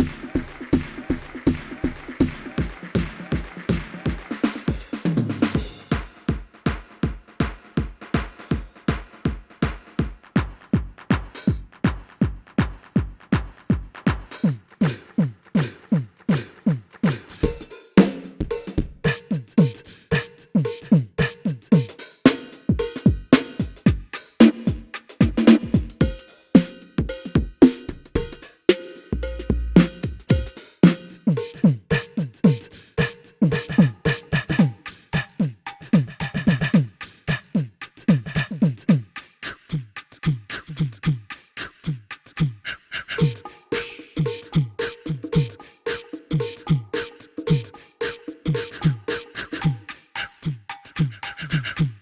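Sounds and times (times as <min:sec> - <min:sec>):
drums playing a busy pattern: 0:00.0 - 0:41.6, 0:43.2 - 0:52.0
hi-hat and cymbal hits: 0:00.0 - 0:41.8, 0:43.2 - 0:52.0
electronic tom hits: 0:28.2 - 0:31.2.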